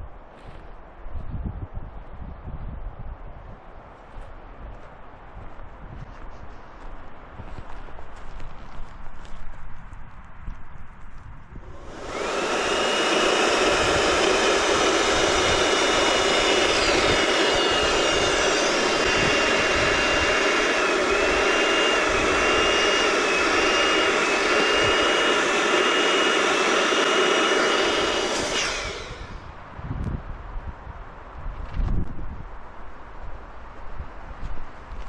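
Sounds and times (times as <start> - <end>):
electric balloon pump whining: 11.6 - 29.6.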